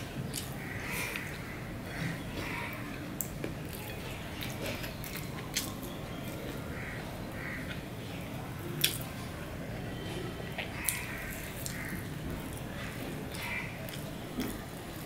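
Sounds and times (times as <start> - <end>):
man chewing: 0.0 - 6.7, 10.5 - 15.0.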